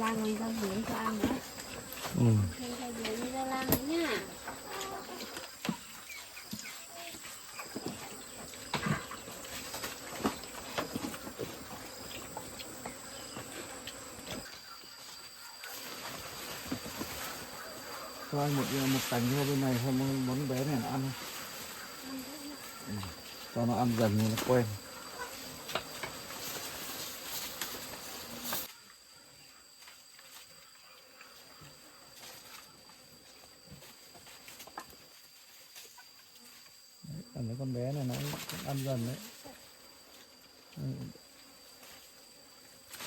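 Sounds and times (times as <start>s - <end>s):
insects trilling: 0.0s - 43.0s.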